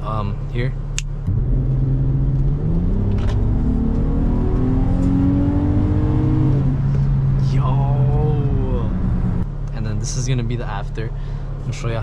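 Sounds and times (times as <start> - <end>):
car engine accelerating: 1.1 - 11.8.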